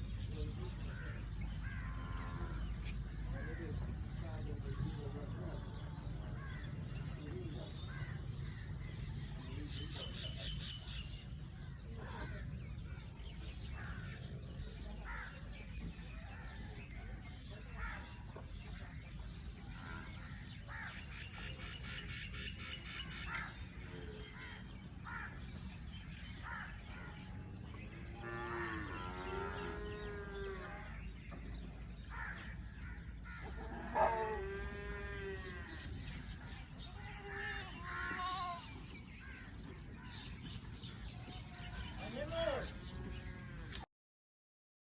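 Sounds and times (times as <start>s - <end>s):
long wavering animal calls: 33.0s - 36.2s.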